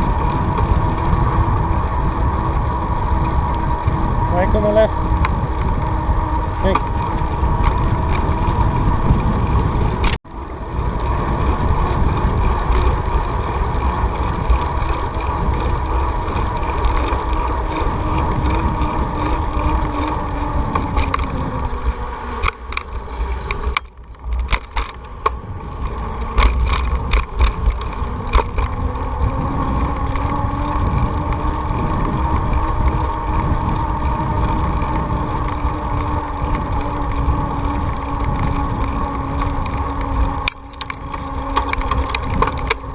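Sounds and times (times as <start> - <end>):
bicycle tyres on pavement: 0.0 - 42.9
wind rumble on microphone: 0.0 - 42.9
quick run of clicks: 10.8 - 42.9.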